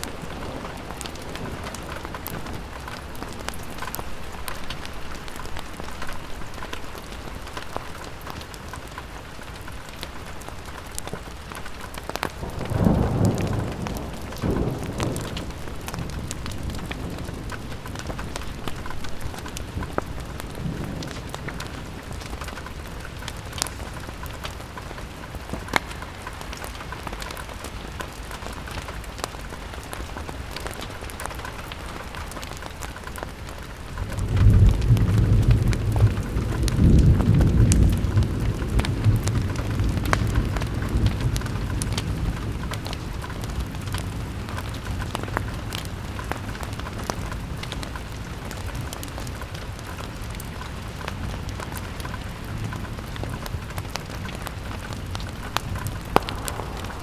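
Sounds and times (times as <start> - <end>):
rain pattering on a window: 0.0 - 57.0
sharp crackles: 0.0 - 57.0
thunder rolling: 12.3 - 25.8, 33.7 - 45.4, 52.9 - 57.0.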